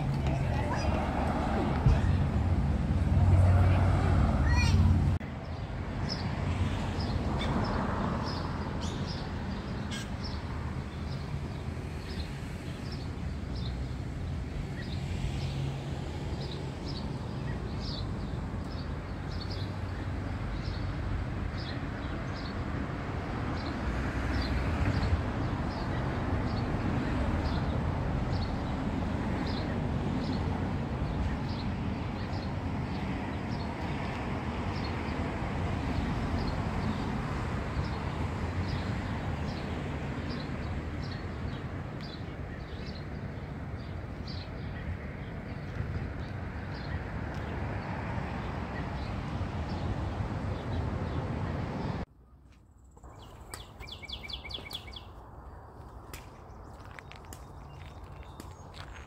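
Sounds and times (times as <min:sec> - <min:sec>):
songbird chirping: 0:38.6 - 0:59.0.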